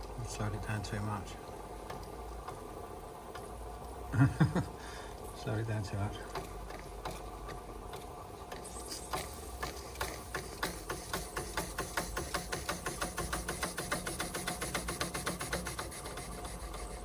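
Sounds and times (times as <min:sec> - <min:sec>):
steam engine chuffing beats: 0:09.0 - 0:17.0.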